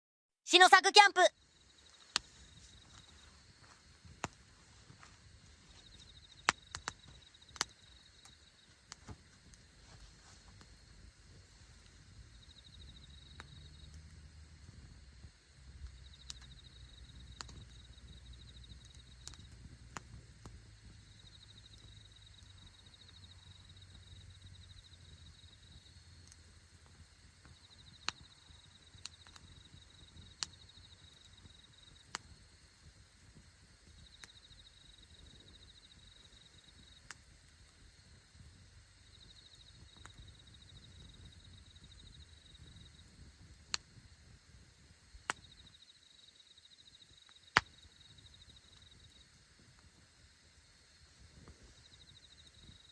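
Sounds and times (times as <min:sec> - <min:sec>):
campfire crackling: 0:00.5 - 0:52.9
burning wood popping: 0:01.5 - 0:45.9, 0:47.1 - 0:50.6
insect trilling: 0:15.9 - 0:19.7.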